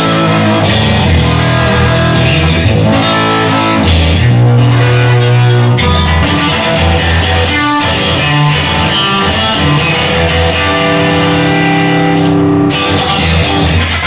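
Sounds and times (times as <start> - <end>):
instrumental rock music: 0.0 - 14.0.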